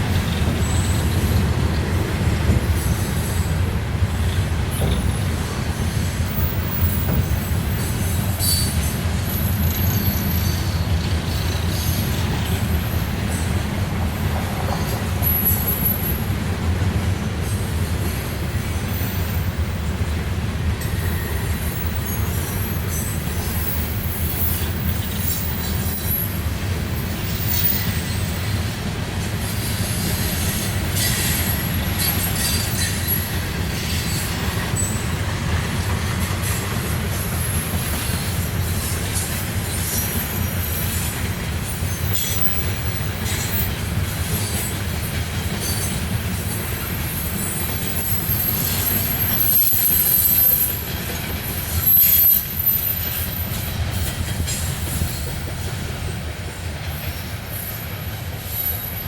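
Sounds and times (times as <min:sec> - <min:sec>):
train wheels rumbling on rails: 0:00.0 - 0:59.0
wheel squeal: 0:04.2 - 0:12.6, 0:14.7 - 0:16.3, 0:20.9 - 0:26.4, 0:27.0 - 0:28.6, 0:30.4 - 0:35.1, 0:41.7 - 0:55.9.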